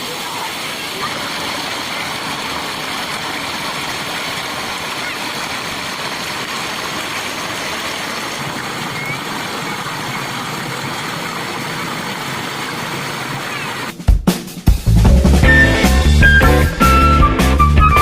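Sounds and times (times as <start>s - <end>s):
waterfall rushing: 0.0s - 14.0s
loud rock music: 14.0s - 18.0s.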